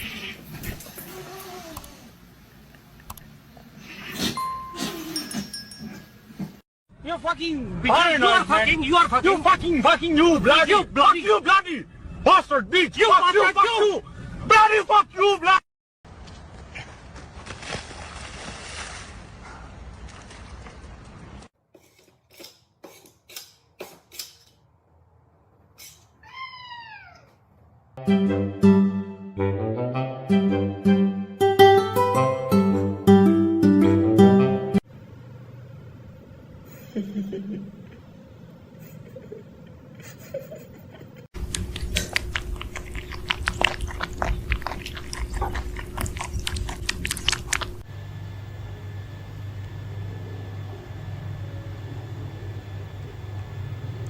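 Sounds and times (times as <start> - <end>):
cat meowing: 26.2 - 27.4
music: 28.0 - 34.8
pet chewing crunchily: 41.4 - 47.9.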